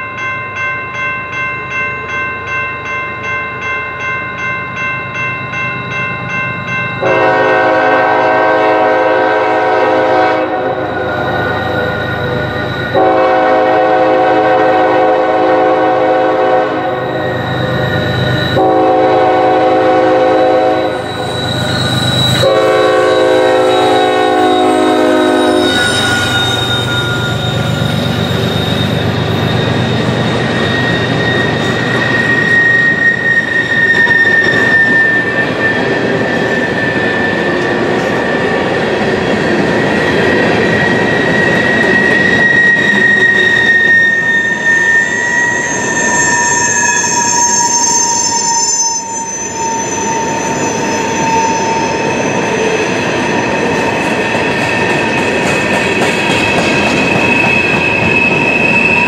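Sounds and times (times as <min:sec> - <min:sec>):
locomotive air horn blasts: 0:07.0 - 0:11.0, 0:12.9 - 0:17.1, 0:18.6 - 0:21.0, 0:22.4 - 0:26.6
high wheel squeal: 0:10.7 - 0:13.3, 0:16.9 - 0:19.2, 0:20.6 - 0:59.0.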